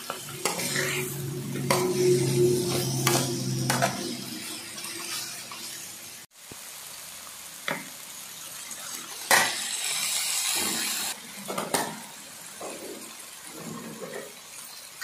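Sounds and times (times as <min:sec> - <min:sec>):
metal spatula scraping a pan: 0:00.0 - 0:05.8
meat sizzling in a wok: 0:00.0 - 0:15.0.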